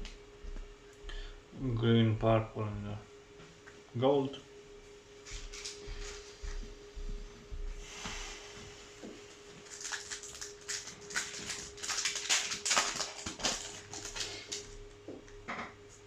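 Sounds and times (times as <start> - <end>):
faint steady hum: 0.0 - 16.0
foil wrapper crinkling and tearing: 9.5 - 14.9.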